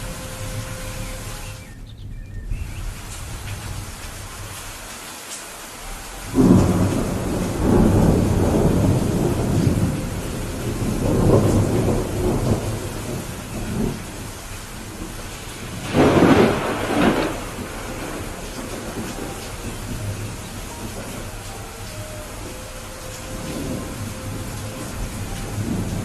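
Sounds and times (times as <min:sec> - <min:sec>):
steady rain hissing: 0:00.0 - 0:26.0
thunder rumbling: 0:05.8 - 0:26.0.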